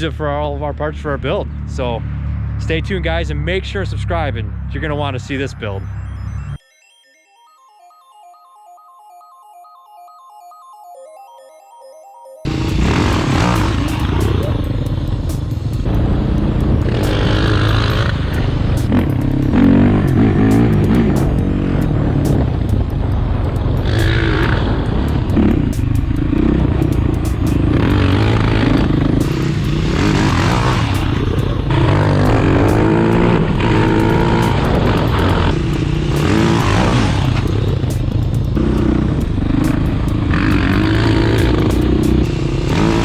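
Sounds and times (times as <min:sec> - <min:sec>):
off-road motorcycle engine revving: 0:12.5 - 0:43.0.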